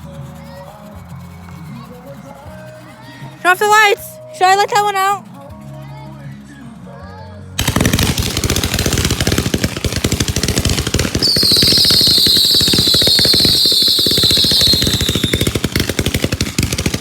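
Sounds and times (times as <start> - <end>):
fireworks crackling bangs: 7.6 - 17.0
high falling whistle: 11.2 - 15.5.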